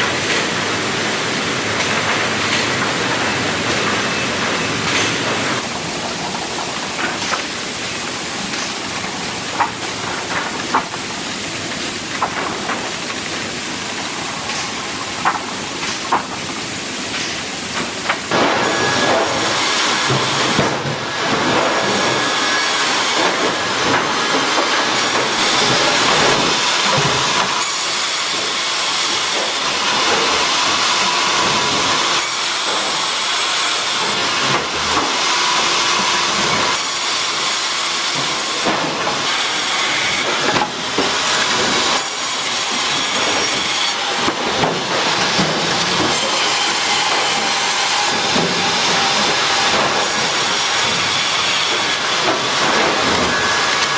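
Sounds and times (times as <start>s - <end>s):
sawmill machinery: 0.0s - 53.9s.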